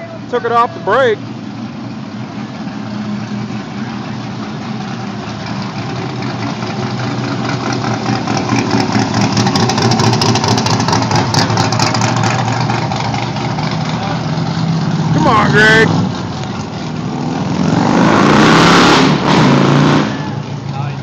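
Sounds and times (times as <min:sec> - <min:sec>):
car engine running: 0:00.0 - 0:21.0.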